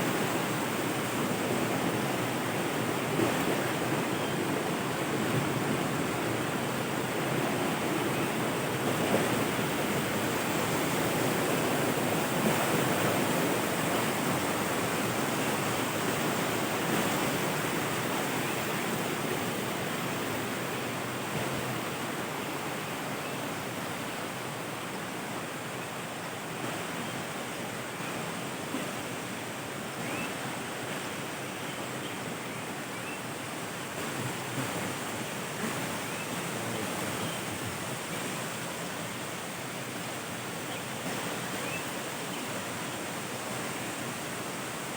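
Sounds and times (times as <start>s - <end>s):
waterfall rushing: 32.2s - 44.9s.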